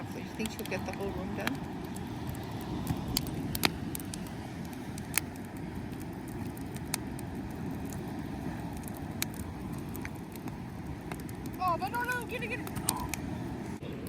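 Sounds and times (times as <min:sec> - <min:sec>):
sharp fire pops: 0:00.0 - 0:13.8
bonfire crackling: 0:00.0 - 0:14.0
low fire rumble: 0:00.0 - 0:14.0.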